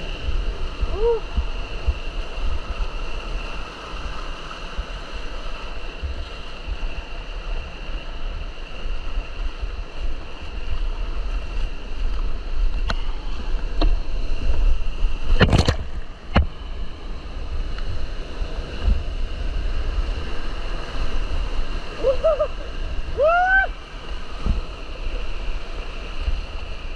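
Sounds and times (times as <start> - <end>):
fast mountain stream rushing: 0.0 - 26.9
wind rumble on microphone: 0.0 - 26.9.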